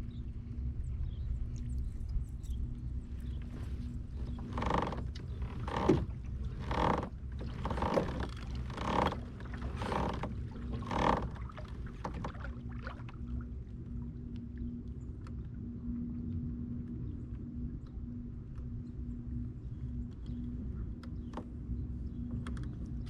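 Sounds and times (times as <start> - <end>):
paddle splashing in water: 3.4 - 14.0.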